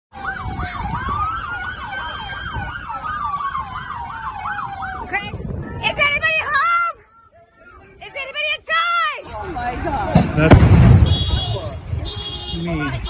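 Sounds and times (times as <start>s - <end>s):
siren wailing: 0.1s - 5.8s
siren yelping: 0.2s - 5.5s.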